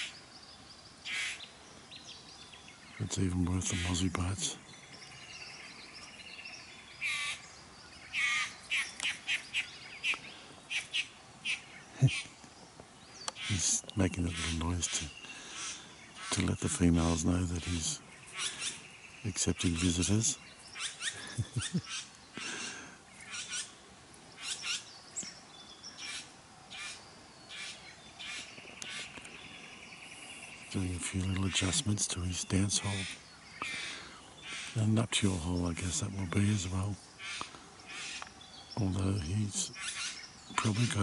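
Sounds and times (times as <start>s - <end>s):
bowerbird calling: 0.0s - 0.3s, 1.0s - 12.4s, 13.1s - 41.0s
bird giving harsh rasping calls: 1.0s - 1.4s, 7.0s - 7.4s, 8.1s - 12.3s, 13.4s - 16.5s, 23.2s - 23.7s, 24.4s - 24.9s, 26.0s - 29.2s, 32.7s - 34.8s, 37.2s - 38.2s, 39.7s - 41.0s.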